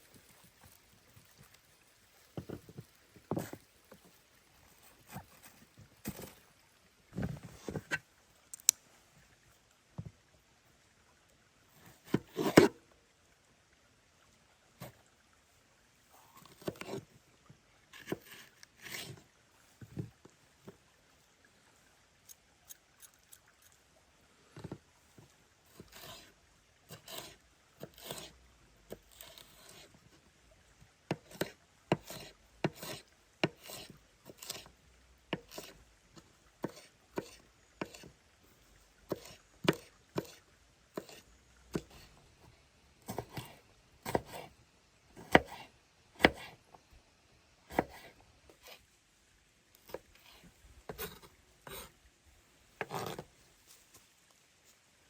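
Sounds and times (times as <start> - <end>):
knife chopping on wooden board: 44.0 - 44.5, 45.2 - 45.6, 46.2 - 46.5, 47.7 - 48.1.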